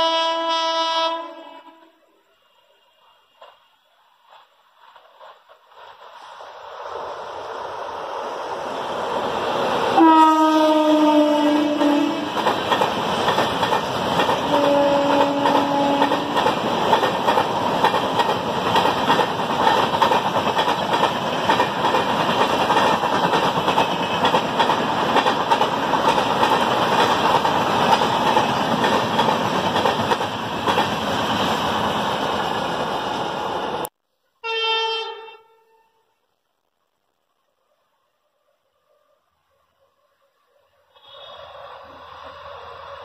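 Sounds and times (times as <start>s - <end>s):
train horn blast: 0.0s - 2.0s, 10.0s - 12.4s, 14.4s - 16.4s, 34.4s - 36.1s
horn-like tone: 0.0s - 2.8s, 10.0s - 12.3s, 14.5s - 16.4s, 34.4s - 36.2s
train wheels on rails: 2.3s - 33.9s, 40.6s - 43.0s.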